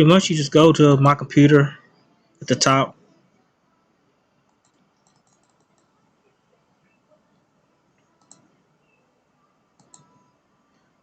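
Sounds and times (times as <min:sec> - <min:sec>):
computer mouse clicks: 0:04.4 - 0:06.0, 0:07.9 - 0:09.0, 0:09.7 - 0:10.8.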